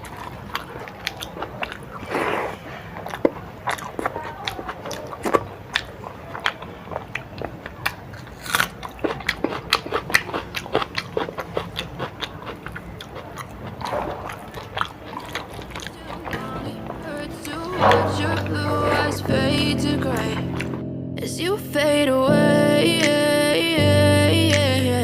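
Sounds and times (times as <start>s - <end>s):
person chewing crunchy food: 0.0s - 16.9s.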